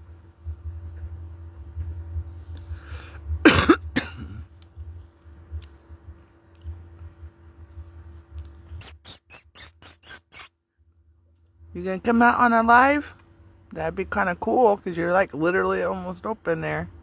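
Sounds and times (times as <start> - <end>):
person coughing: 3.5 - 4.4
rapid short sharp sounds: 8.8 - 10.5.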